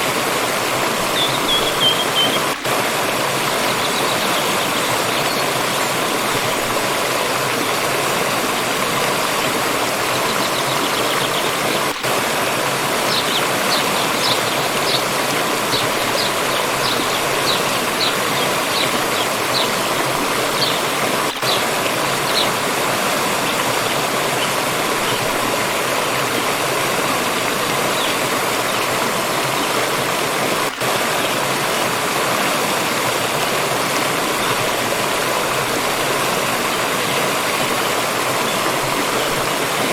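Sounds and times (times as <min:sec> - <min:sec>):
stream rushing: 0:00.0 - 0:39.9
bird chirping: 0:01.2 - 0:02.5, 0:13.1 - 0:15.1, 0:15.7 - 0:19.8.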